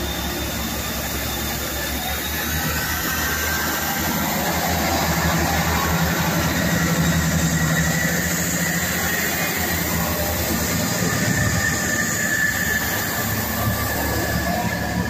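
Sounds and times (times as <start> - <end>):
diesel train engine drone: 0.0 - 15.0
rail rumble: 0.0 - 15.0
thin high whine: 0.0 - 15.0.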